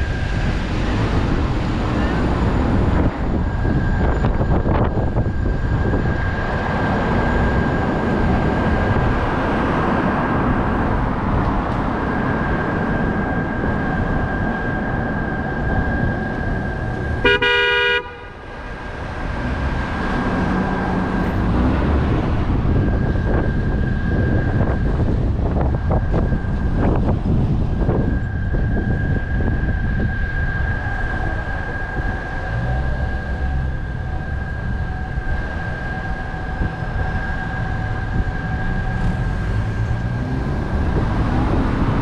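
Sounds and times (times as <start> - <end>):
car road and wind noise: 0.0 - 42.0
vehicle horn honk: 17.2 - 18.4.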